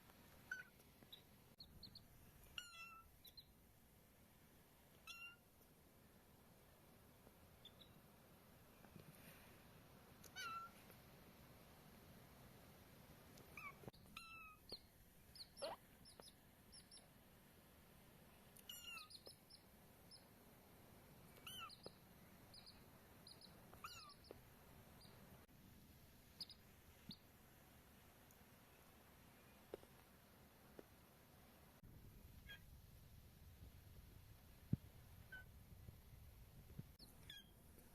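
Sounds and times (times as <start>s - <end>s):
chick peeping: 14.6s - 17.1s, 18.6s - 20.2s, 21.4s - 24.4s, 26.4s - 27.2s.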